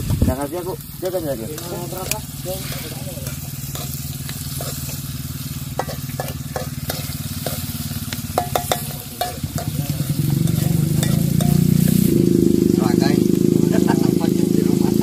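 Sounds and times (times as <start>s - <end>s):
engine running: 0.0s - 15.0s
food sizzling in hot oil: 0.0s - 15.0s
spatula scraping a wok: 0.8s - 12.3s.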